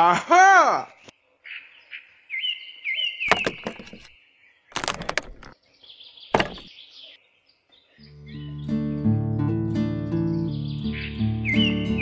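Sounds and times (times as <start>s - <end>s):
small birds chirping: 0.9s - 9.2s, 10.0s - 12.0s
plastic clattering: 3.3s - 4.1s, 4.8s - 5.6s, 6.4s - 6.7s.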